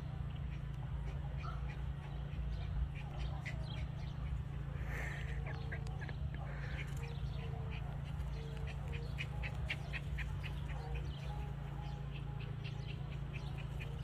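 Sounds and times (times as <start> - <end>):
birds chirping: 0.0 - 14.0
steady low hum: 0.0 - 14.0.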